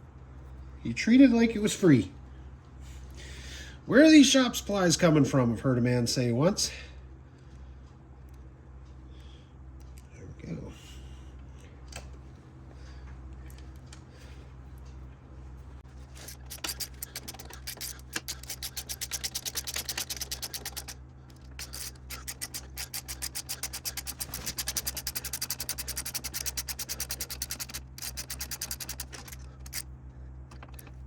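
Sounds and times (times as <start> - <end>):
steady low hum: 0.0 - 31.0
ratchet wrench clicking rapidly: 16.1 - 29.9.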